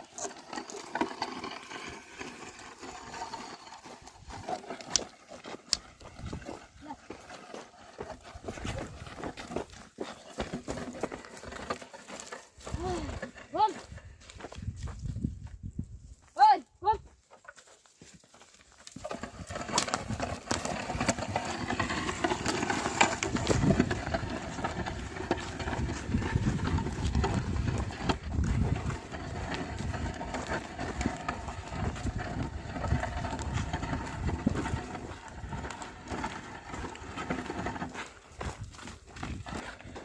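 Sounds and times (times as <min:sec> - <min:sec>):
plough scraping through soil: 0:00.0 - 0:15.9, 0:17.2 - 0:40.0
hooves treading on soil: 0:00.0 - 0:40.0.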